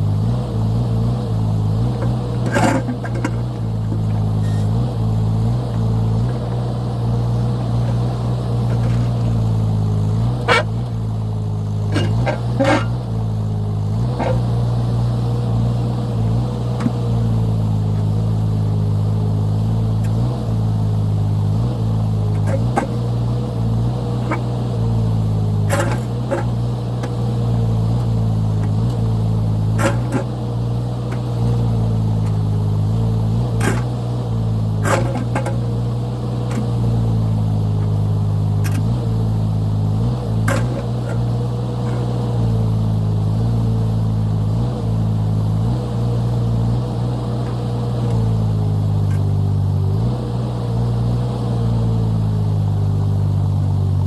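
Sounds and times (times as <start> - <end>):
excavator engine running: 0.0 - 54.0
hydraulic whine: 1.1 - 43.3
bucket clanking against rock: 2.0 - 4.3, 8.6 - 9.5, 11.9 - 13.0, 22.3 - 23.1, 25.6 - 27.2, 29.7 - 30.4, 33.5 - 34.0, 34.8 - 35.8, 40.5 - 42.1.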